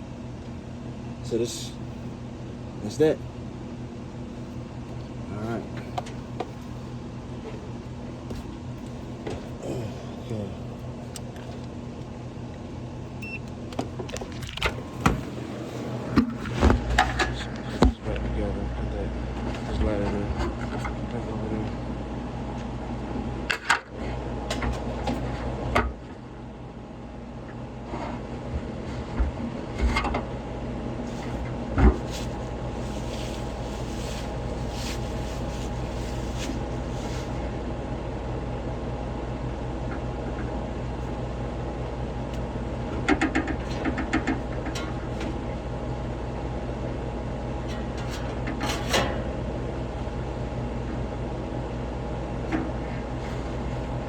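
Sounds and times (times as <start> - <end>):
hvac machine hum: 0.0 - 54.0.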